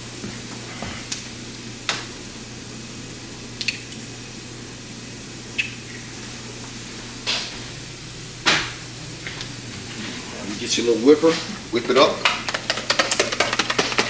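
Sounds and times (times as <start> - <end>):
steady low hum: 0.0 - 14.0
taps on kitchenware: 11.8 - 14.0.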